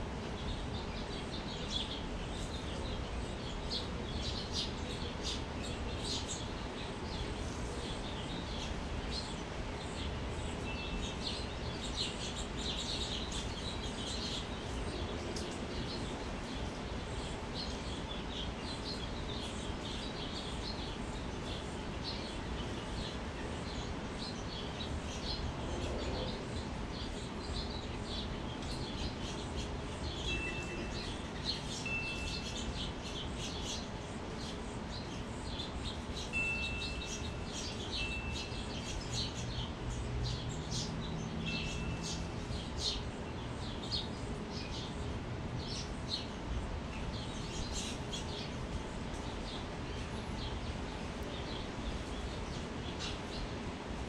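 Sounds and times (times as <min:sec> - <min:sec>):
small birds chirping: 0:00.0 - 0:54.0
wind chimes ringing: 0:36.3 - 0:38.6.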